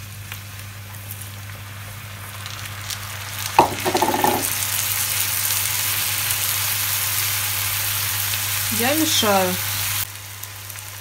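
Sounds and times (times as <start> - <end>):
meat and carrots sizzling in pan: 0.0 - 11.0
sharp knock against pan: 3.6 - 4.5.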